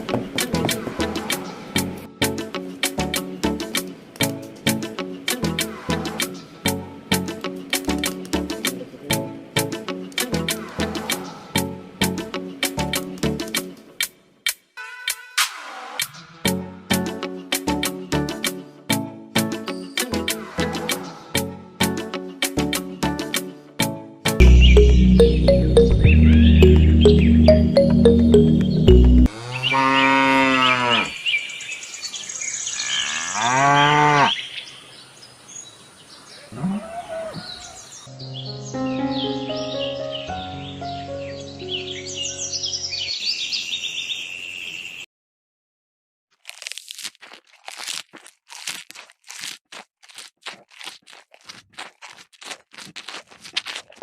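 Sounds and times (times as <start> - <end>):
background music: 0.0 - 29.3, 38.1 - 43.0
cattle mooing: 29.3 - 31.2, 32.8 - 34.4, 36.5 - 37.6
hand tool rasping wood: 47.2 - 54.0.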